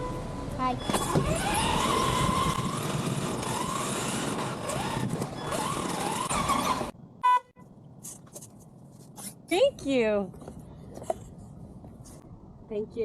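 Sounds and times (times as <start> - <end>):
toy car electric motor whining: 0.8 - 7.0
wheels rolling on ground: 0.8 - 7.0.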